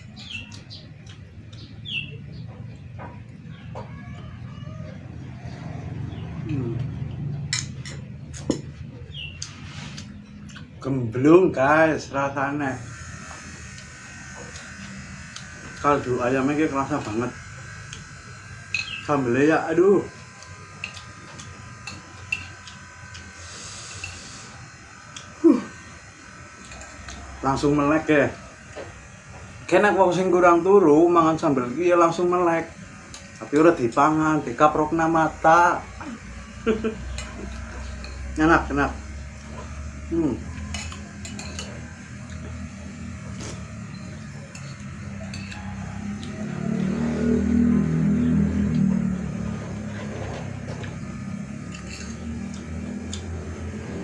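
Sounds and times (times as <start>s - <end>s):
steady low hum: 0.0s - 54.0s
electrical buzz: 5.0s - 54.0s
light sharp eating clicks: 9.3s - 10.8s, 20.4s - 23.3s, 51.7s - 53.3s
spoon clinking against dish: 40.6s - 41.8s, 44.5s - 45.6s.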